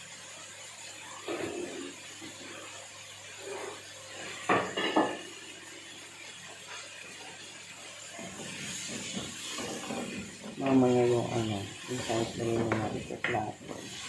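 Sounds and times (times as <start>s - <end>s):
dishes clinking: 4.5s - 5.3s.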